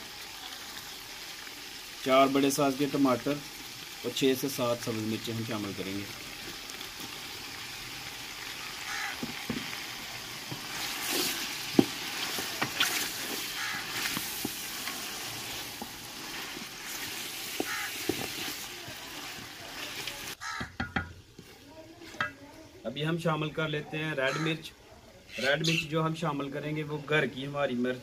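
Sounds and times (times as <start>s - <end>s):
food sizzling in a pot: 0.0s - 28.0s
wooden spatula scraping and knocking: 8.9s - 9.8s, 10.4s - 22.4s.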